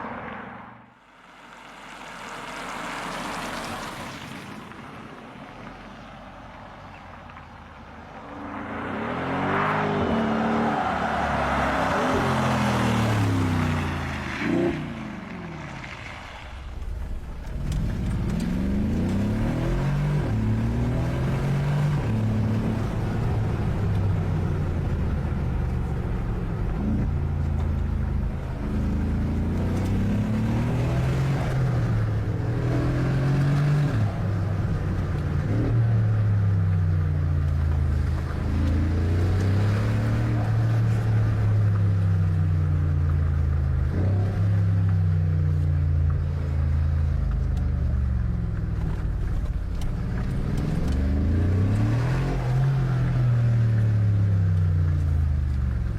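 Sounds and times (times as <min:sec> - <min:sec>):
car engine revving: 0:08.1 - 0:55.9.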